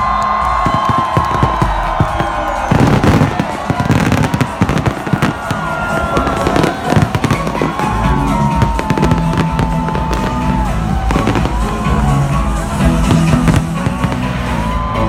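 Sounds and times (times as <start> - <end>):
music playing: 0.0 - 15.0
fireworks banging and crackling: 0.1 - 15.0.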